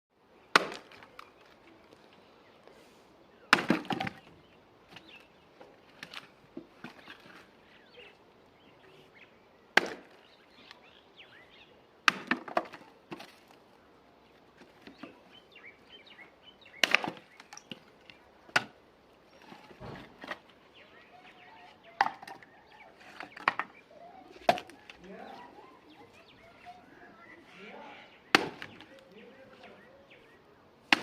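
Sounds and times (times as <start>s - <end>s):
faint bird chirps: 20.6s - 30.7s.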